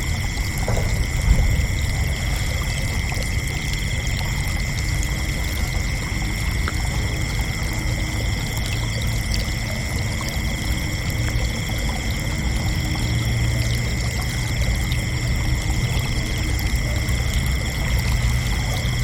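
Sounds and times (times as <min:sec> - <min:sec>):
crickets chirping: 0:00.0 - 0:19.0
steady low rumble: 0:00.0 - 0:19.0.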